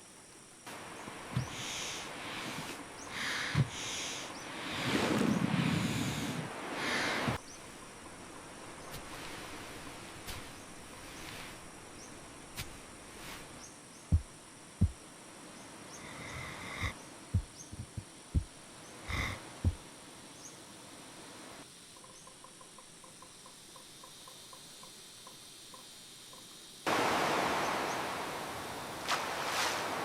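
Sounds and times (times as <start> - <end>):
insects hissing: 0.0 - 30.0
faint regular ticking chirp: 15.9 - 19.8, 21.8 - 26.6.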